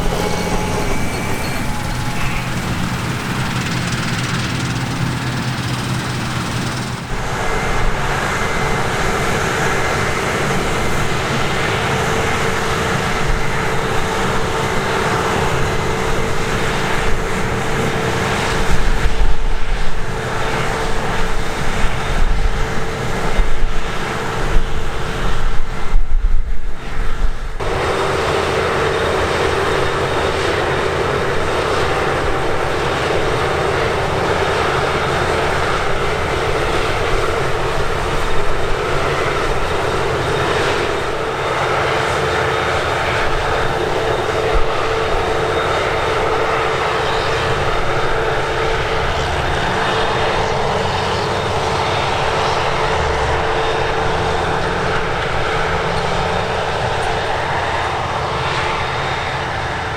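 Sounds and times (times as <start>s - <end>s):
loud low bursts: 0.0s - 8.0s
harvest machinery engines running: 0.0s - 25.4s, 27.6s - 59.9s
steady whine: 0.0s - 25.8s, 26.8s - 59.9s.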